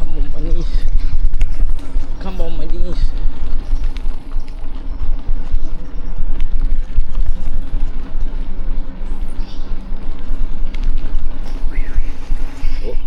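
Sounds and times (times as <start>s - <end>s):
bike rattling over rough ground: 0.0s - 13.0s
faint steady hum: 0.0s - 13.0s
wind buffeting microphone: 0.0s - 13.0s.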